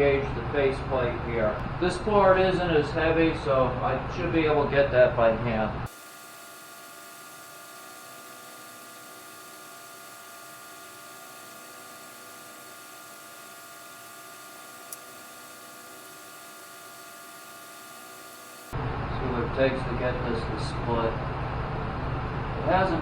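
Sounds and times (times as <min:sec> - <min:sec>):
faint electrical whine: 0:00.0 - 0:23.0
room tone hiss: 0:05.9 - 0:21.2.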